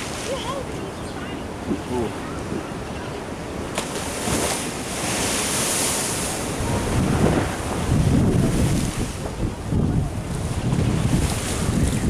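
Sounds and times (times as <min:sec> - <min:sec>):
ocean surf washing in: 0:01.6 - 0:12.0
wind buffeting microphone: 0:03.6 - 0:12.0.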